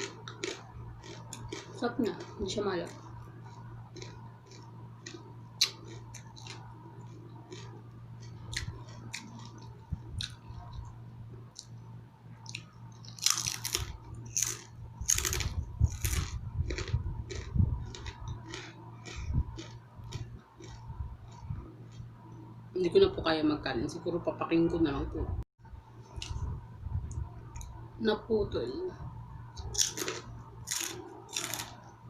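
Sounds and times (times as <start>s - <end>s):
person chewing crunchy fish: 0.0s - 10.9s, 12.4s - 22.0s, 29.6s - 31.9s
wet chewing clicks: 0.0s - 10.9s, 12.4s - 22.0s.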